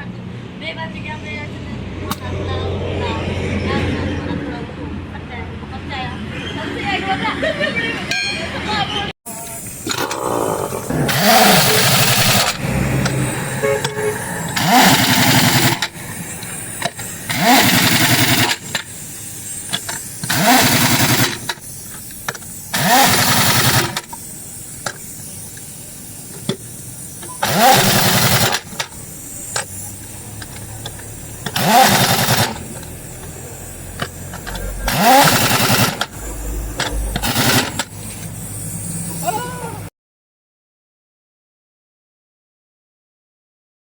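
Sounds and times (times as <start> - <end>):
pneumatic impact wrench: 9.3 - 39.8.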